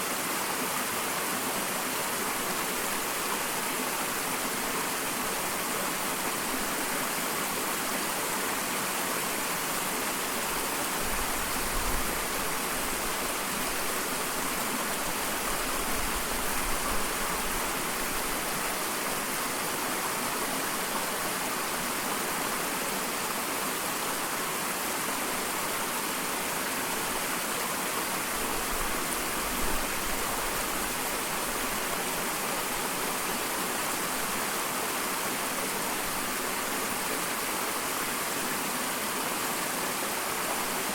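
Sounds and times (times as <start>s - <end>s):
waterfall pouring and splashing: 0.0s - 40.9s.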